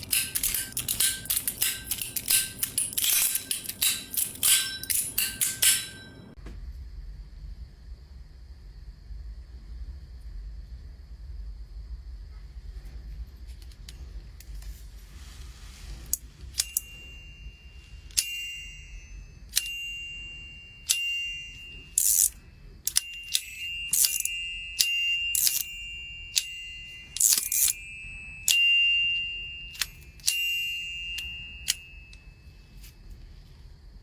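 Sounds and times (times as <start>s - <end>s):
metal fidget toy clicking: 0.0s - 6.1s, 16.5s - 17.0s, 18.1s - 18.7s, 19.4s - 20.0s, 20.8s - 28.7s, 29.6s - 32.9s.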